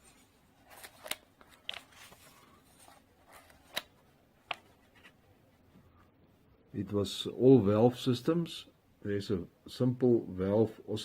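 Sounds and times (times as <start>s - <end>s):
book pages turning: 0.0s - 5.2s.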